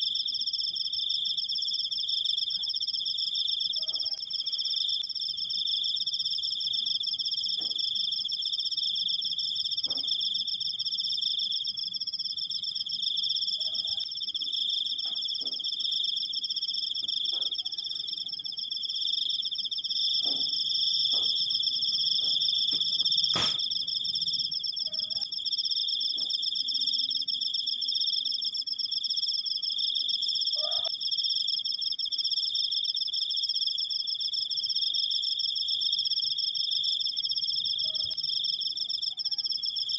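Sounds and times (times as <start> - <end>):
crickets trilling: 0.0 - 39.9
sharp click: 23.3 - 23.6
faint animal calls: 30.4 - 30.9.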